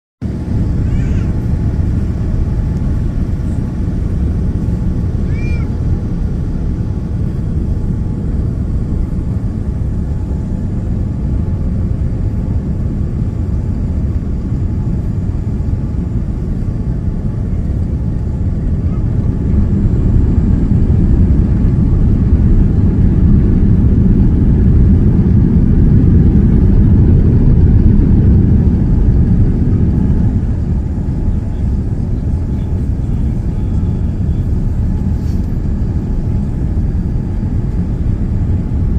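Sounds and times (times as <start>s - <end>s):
airplane cabin engine rumble: 0.2s - 38.9s.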